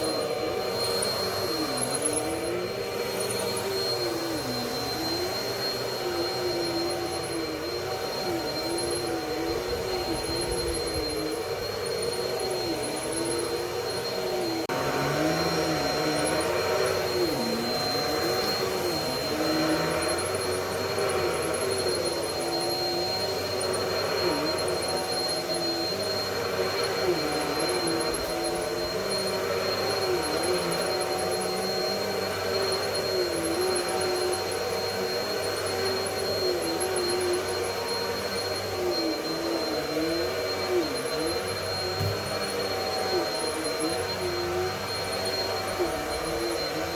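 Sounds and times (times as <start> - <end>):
vacuum cleaner running on carpet: 0.0 - 46.9.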